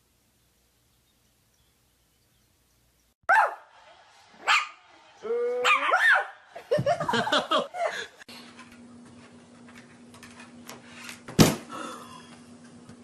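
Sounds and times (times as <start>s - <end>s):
dog yipping and barking: 3.3s - 3.6s, 5.6s - 6.4s
steady low hum: 6.3s - 13.0s.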